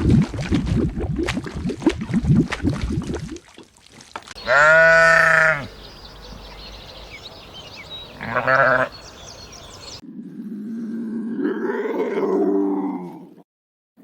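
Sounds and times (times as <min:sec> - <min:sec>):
farm animal bleating: 0:04.4 - 0:05.8, 0:08.1 - 0:09.2
small birds chirping faintly: 0:04.4 - 0:10.0.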